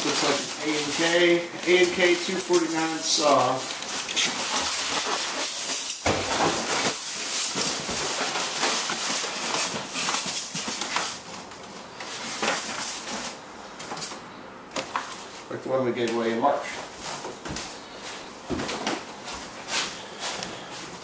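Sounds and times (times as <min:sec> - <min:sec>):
packaging rustling and scraping: 0:00.0 - 0:14.2.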